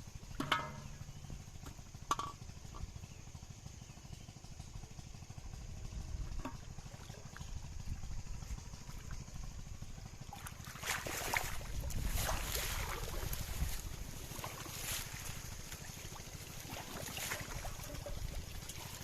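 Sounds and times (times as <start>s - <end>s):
water splashing and sloshing: 0.0s - 2.4s, 6.1s - 19.0s
wind rumble on microphone: 5.7s - 6.8s, 7.4s - 10.0s, 11.1s - 15.7s.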